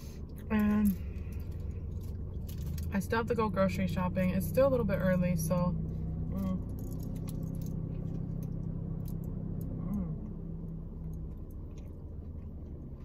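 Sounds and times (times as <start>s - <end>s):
car cabin hum: 0.0s - 13.0s
person humming: 9.8s - 10.3s.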